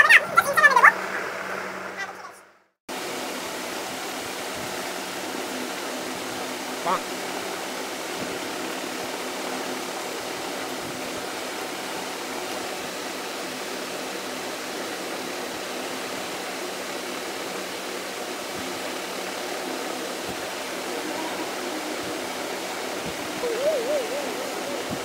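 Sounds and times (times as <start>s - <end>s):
room background hiss: 2.9s - 25.0s
faint constant hum: 3.0s - 25.0s.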